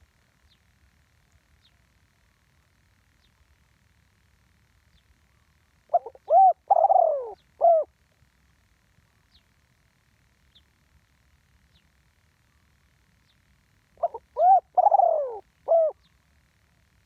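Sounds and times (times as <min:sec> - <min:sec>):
dove cooing: 0:05.9 - 0:08.0, 0:14.0 - 0:16.1.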